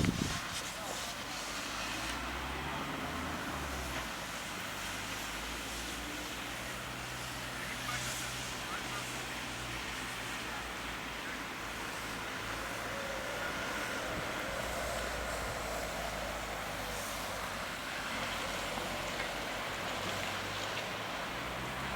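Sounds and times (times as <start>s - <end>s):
steady hiss: 0.0s - 21.9s
vehicle engine humming: 5.1s - 21.9s.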